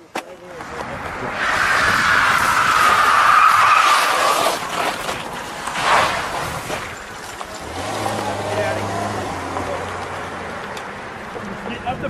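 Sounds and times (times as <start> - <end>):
car tyres squealing: 0.6 - 10.1.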